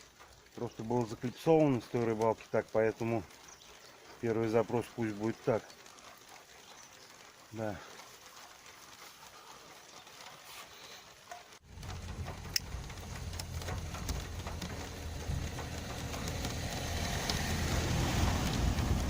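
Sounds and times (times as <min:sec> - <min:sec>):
rain falling: 0:00.0 - 0:19.0
low rumble: 0:11.6 - 0:19.0.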